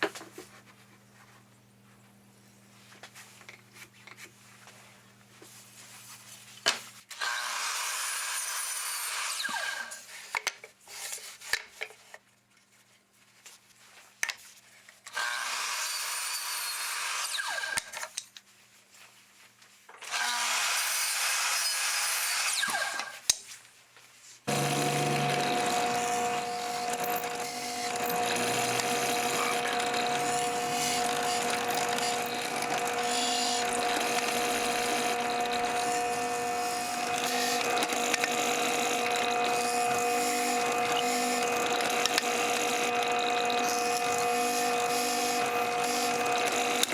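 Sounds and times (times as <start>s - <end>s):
power tool cutting wood: 7.2s - 10.0s, 15.2s - 17.9s, 20.0s - 23.2s, 24.5s - 46.9s
machine humming: 24.5s - 46.9s.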